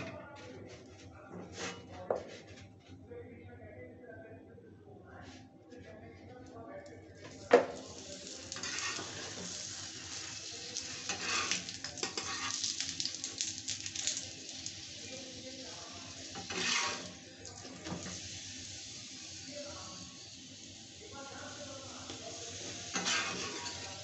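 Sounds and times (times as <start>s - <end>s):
spatula scraping and tapping pan: 1.4s - 2.7s, 8.5s - 9.6s, 10.2s - 14.2s, 16.3s - 18.2s, 22.1s - 24.0s
oil sizzling on a hot pan: 7.2s - 24.0s.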